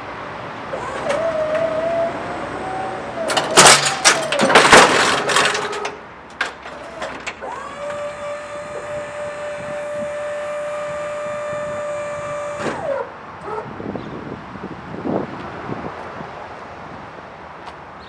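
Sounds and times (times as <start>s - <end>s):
hydraulic pump motor whine: 0.3s - 13.8s
clatter: 0.7s - 8.0s.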